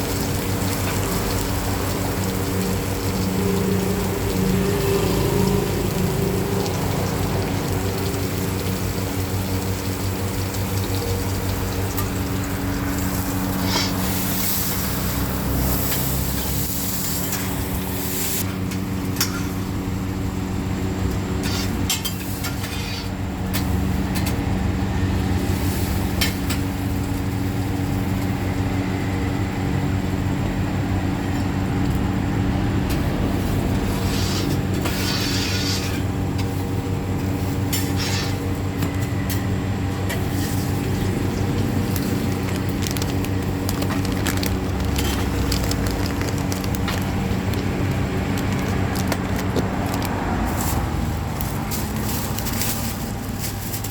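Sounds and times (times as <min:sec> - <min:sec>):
food sizzling on flat pan: 0:00.0 - 0:18.5.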